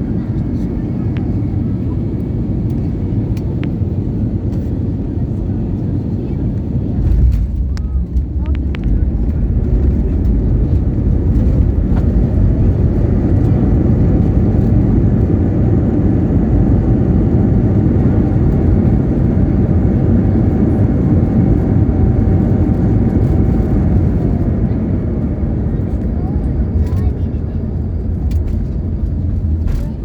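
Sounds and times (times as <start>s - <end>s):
airplane cabin rumble: 0.0s - 30.0s.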